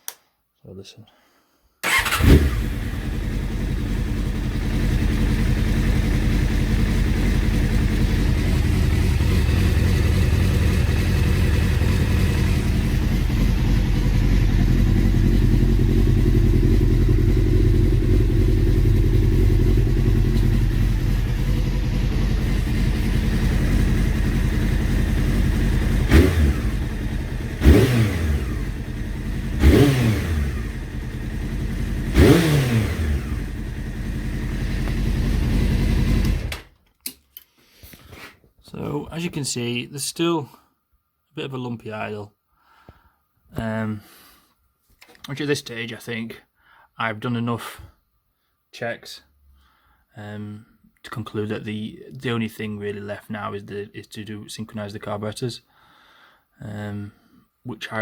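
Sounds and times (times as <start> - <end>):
motorcycle engine idling: 1.8 - 36.6.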